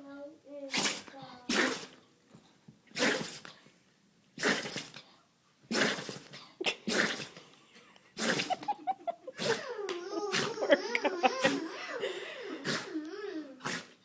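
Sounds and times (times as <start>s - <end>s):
dog snorting: 0.7s - 2.0s, 2.9s - 3.6s, 4.4s - 5.1s, 5.7s - 7.5s, 8.2s - 8.8s, 12.5s - 14.0s
dog sneezing: 0.7s - 2.1s, 2.9s - 3.7s, 4.4s - 7.5s, 8.2s - 8.7s, 9.4s - 9.7s, 10.3s - 11.8s, 12.6s - 13.0s, 13.6s - 14.0s.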